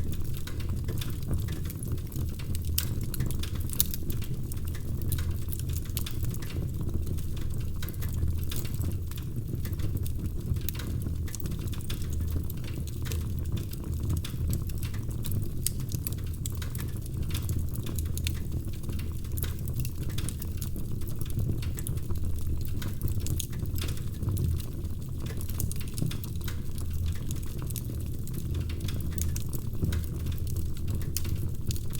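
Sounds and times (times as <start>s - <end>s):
fire pops and snaps: 0.0s - 31.9s
low rumble of flames: 0.0s - 31.9s.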